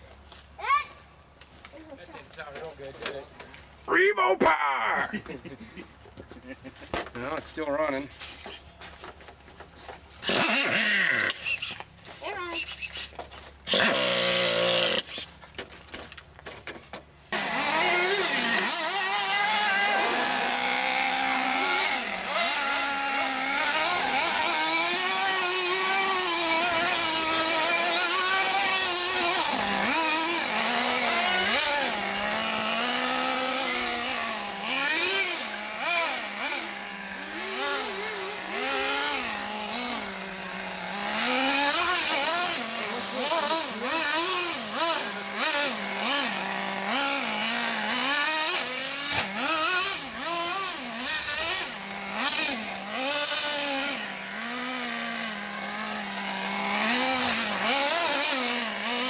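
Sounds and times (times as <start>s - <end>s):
small nitro engine revving: 10.2s - 15.3s, 17.3s - 59.0s.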